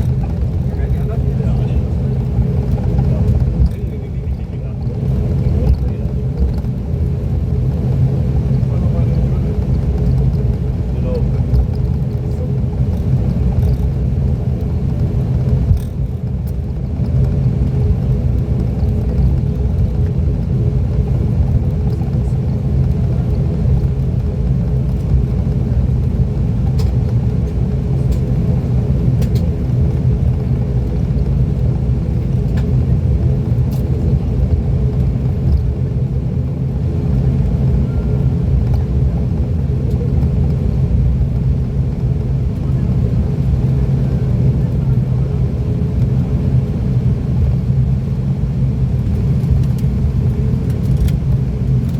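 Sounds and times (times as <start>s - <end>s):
turboprop cabin drone: 0.0s - 51.9s.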